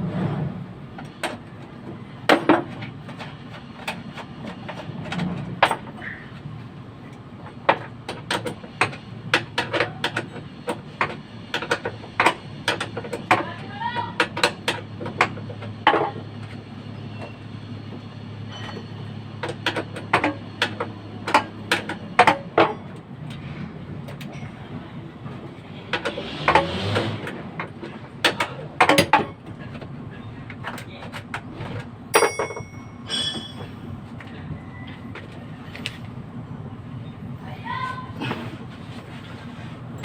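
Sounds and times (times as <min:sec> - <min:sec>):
metal tools clanking: 0:18.4 - 0:35.0.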